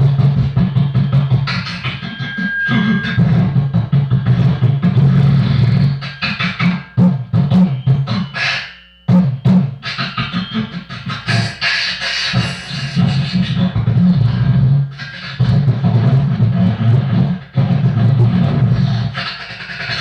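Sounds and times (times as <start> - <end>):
beatboxed hissing hi-hat sounds: 0.0 - 2.2, 3.1 - 20.0
beatboxing kick and snare hits: 0.0 - 2.2, 3.2 - 20.0
low buzzing bass: 0.0 - 10.0.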